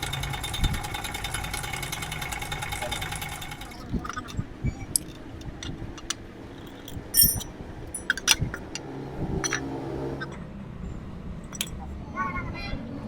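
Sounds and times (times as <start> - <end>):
metal tools clicking and clinking: 3.5 - 10.4, 11.5 - 11.8.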